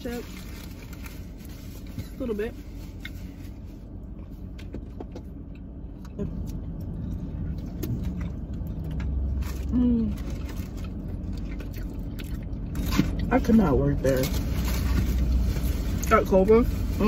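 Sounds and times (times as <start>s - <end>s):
low car interior hum: 0.0s - 17.0s
person chewing food: 5.2s - 9.4s, 10.2s - 13.3s.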